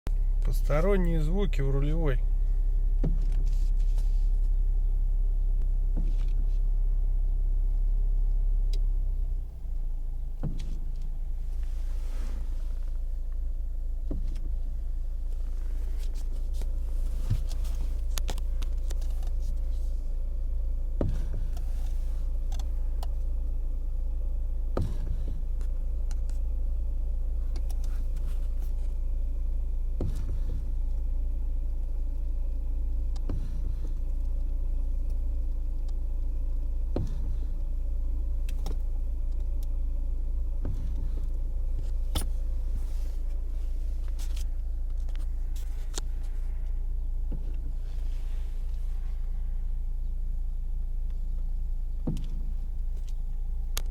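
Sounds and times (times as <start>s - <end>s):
low engine hum: 0.0s - 53.9s
steering knocking: 0.1s - 4.7s, 8.2s - 50.3s, 51.0s - 53.9s.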